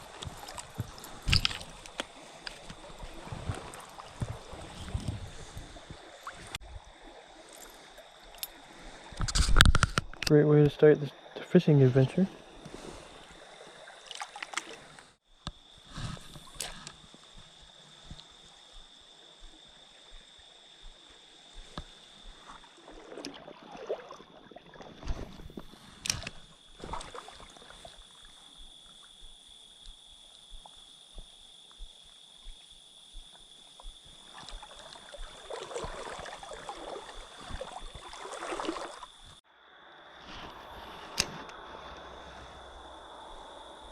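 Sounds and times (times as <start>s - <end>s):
creek water sloshing and gurgling: 0.0s - 39.4s.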